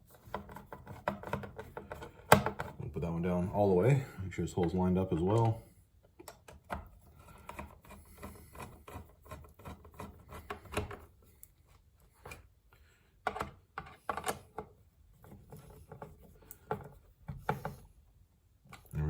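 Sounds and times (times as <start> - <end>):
plastic parts clicking and scraping: 0.0 - 2.8, 4.6 - 11.6, 13.2 - 17.9.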